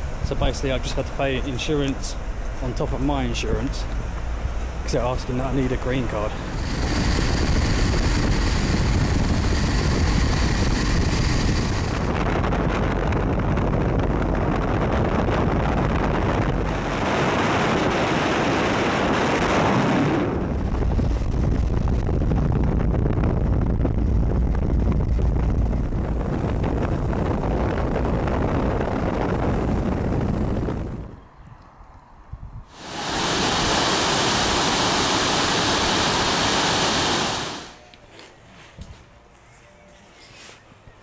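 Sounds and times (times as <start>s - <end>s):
motorcycle low rumble: 0.0s - 31.2s
wind rushing over microphone: 0.0s - 31.6s, 32.2s - 37.8s.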